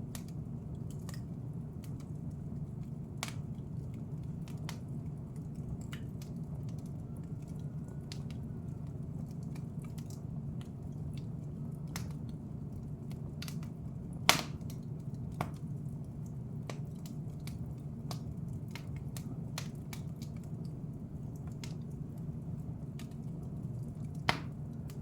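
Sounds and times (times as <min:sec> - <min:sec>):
low steady rumble: 0:00.0 - 0:25.0
wood fire crackling: 0:00.0 - 0:25.0
loud fire pop: 0:14.3 - 0:14.6, 0:24.3 - 0:24.6.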